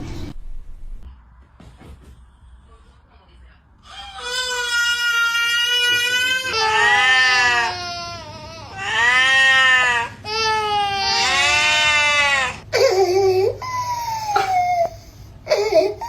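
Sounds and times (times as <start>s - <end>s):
young child crying: 10.3s - 16.0s.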